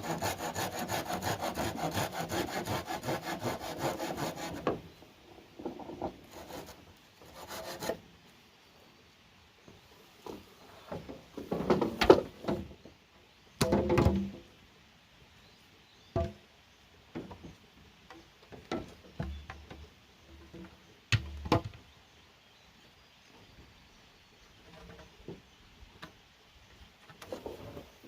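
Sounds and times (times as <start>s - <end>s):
bamboo knocking and clunking: 10.2s - 12.8s, 13.6s - 14.5s, 16.1s - 16.4s, 17.1s - 21.9s.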